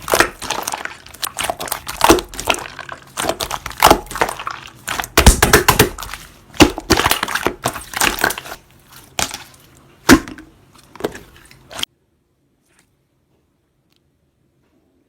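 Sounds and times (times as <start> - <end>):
slime squishing and popping: 0.0 - 11.9.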